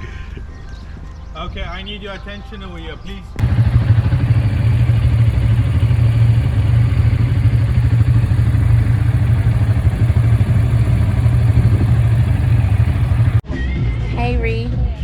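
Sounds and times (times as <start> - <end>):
quad bike engine droning: 3.4 - 13.4.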